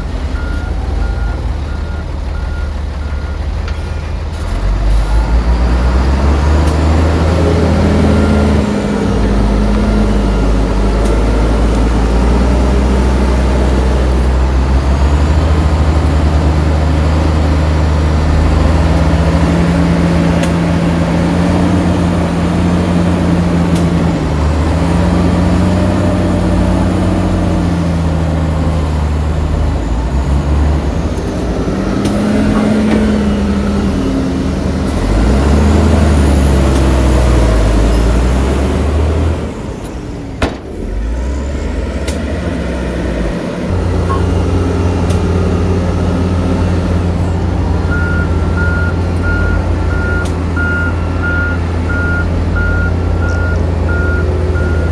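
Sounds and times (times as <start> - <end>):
diesel engine revving: 0.0 - 54.9
reversing alarm beeping: 0.3 - 3.5, 43.7 - 44.9, 47.8 - 54.9.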